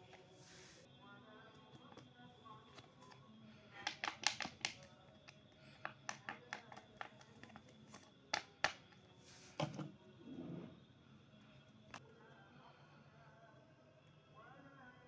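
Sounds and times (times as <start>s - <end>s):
plastic toy clicks and taps: 3.8s - 4.9s, 5.8s - 9.0s.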